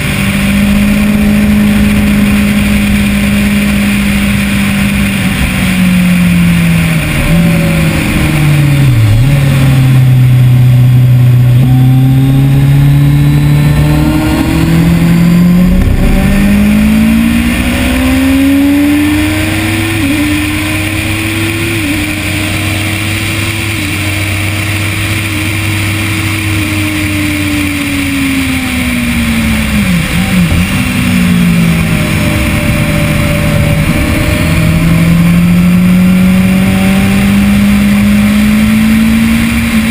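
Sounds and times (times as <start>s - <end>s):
motorcycle engine revving: 0.0s - 39.9s
wind rush: 13.3s - 22.2s, 29.4s - 36.6s.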